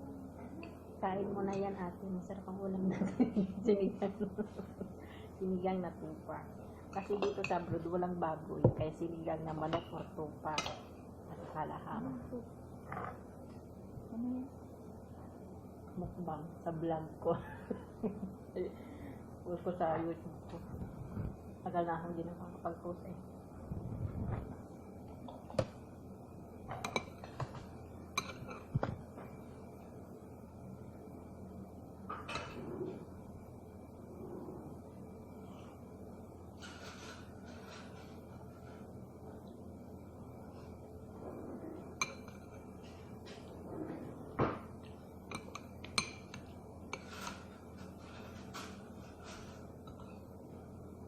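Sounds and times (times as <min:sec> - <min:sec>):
utensils clinking on plate: 0:28.2 - 0:28.8.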